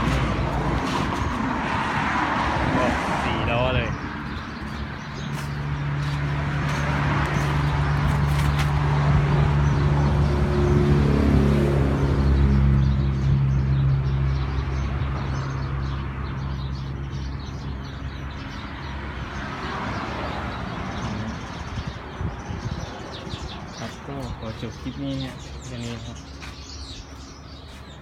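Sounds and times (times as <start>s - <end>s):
large vehicle engine humming: 0.0s - 16.6s.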